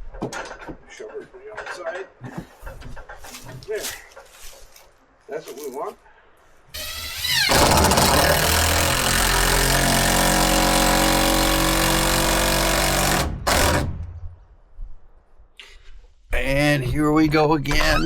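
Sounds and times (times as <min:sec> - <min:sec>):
power tool running: 0:06.8 - 0:14.0.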